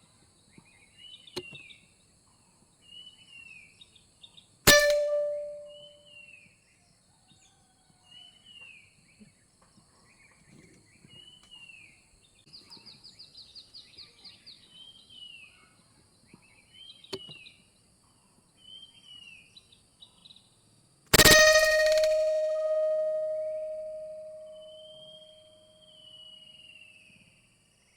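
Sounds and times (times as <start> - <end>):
sharp click: 4.7 - 5.8, 21.1 - 24.8
bird trill of high notes: 4.7 - 6.1, 21.2 - 26.3.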